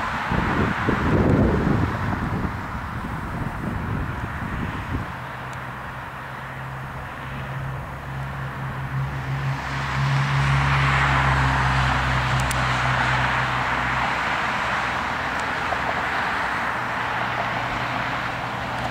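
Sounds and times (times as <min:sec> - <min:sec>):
heavy vehicle engine hum: 0:00.0 - 0:18.9
road noise: 0:00.0 - 0:18.9.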